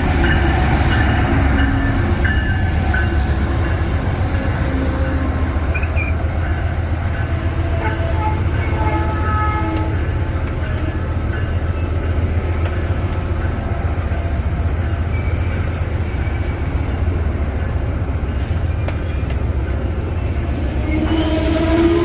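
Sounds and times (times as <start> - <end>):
train rumbling: 0.0 - 22.0
loud multi-tone squeal: 3.6 - 6.3.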